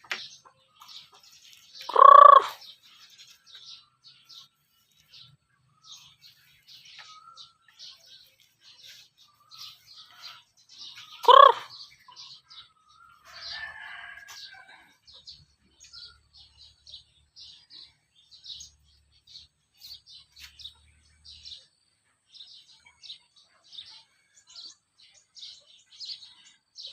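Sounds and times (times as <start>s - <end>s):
chickens peeping: 0.0s - 26.7s
chicken calling: 1.8s - 2.7s, 10.1s - 11.9s.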